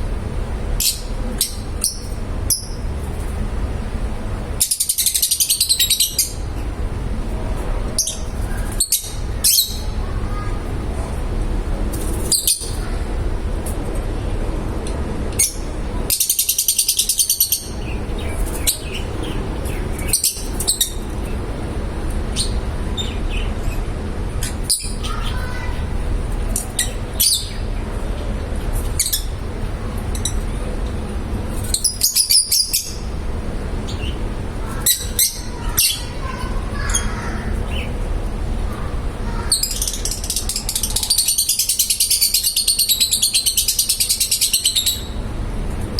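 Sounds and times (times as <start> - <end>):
low background hum: 0.0 - 45.9
lovebirds chirping: 0.8 - 3.4, 4.5 - 6.8, 7.4 - 11.1, 15.4 - 21.6, 24.4 - 28.0, 31.6 - 45.2.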